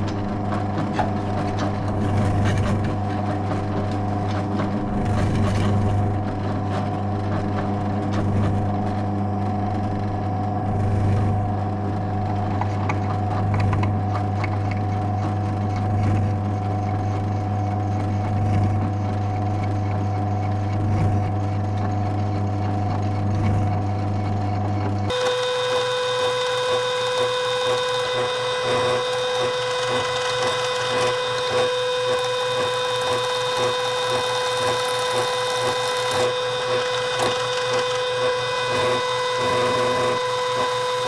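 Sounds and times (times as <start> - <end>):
drill press bit grinding steel: 25.1 - 41.0.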